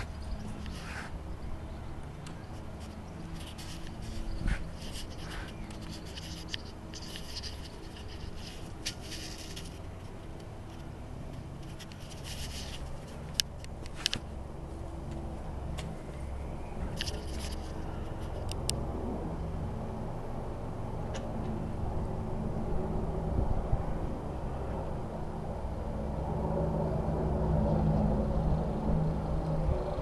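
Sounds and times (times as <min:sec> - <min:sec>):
light scraping and rubbing: 0:00.0 - 0:01.2, 0:02.3 - 0:14.3, 0:16.8 - 0:18.5
low steady hum: 0:00.0 - 0:30.0.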